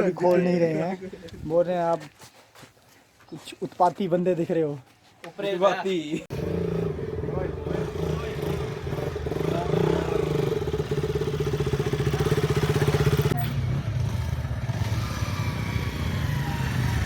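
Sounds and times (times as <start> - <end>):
motorcycle engine running: 6.3 - 17.0.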